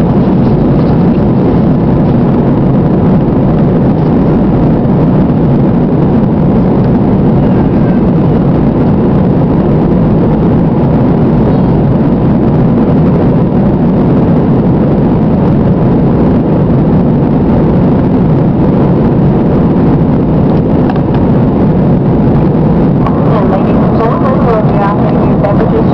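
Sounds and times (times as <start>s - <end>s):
airliner engine noise in cabin: 0.0s - 25.9s.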